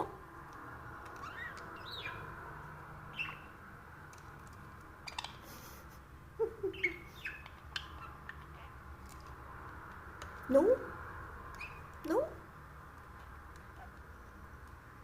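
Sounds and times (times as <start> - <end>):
background hum: 0.0 - 15.0
budgerigar chirping and squawking: 1.2 - 2.3, 3.1 - 3.6, 5.0 - 5.5, 6.7 - 8.8, 11.6 - 11.9.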